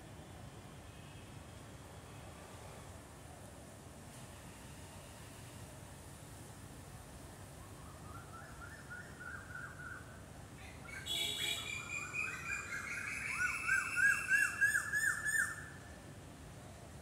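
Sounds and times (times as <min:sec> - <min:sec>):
bird singing: 0:10.8 - 0:15.7.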